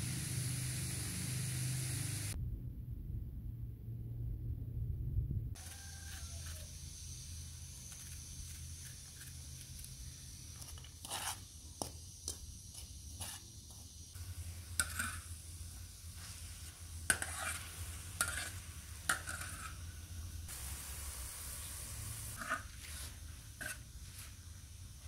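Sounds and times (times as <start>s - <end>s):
mushrooms sizzling in oil: 0.0s - 2.4s, 5.8s - 25.0s
metal spoon scraping and clinking: 14.8s - 15.3s, 17.1s - 19.8s.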